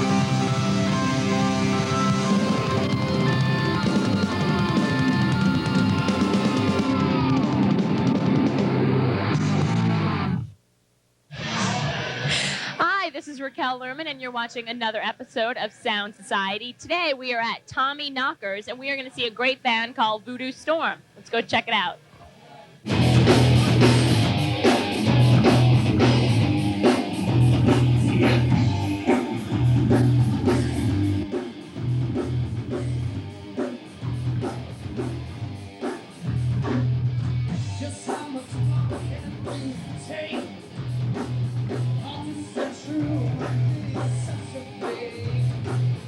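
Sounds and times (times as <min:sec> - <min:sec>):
crunchy electric guitar: 0:00.0 - 0:10.6, 0:22.8 - 0:46.0
steady drum beat: 0:02.2 - 0:08.8, 0:22.9 - 0:46.0
heavy chugging bass: 0:22.9 - 0:33.4, 0:34.0 - 0:42.4.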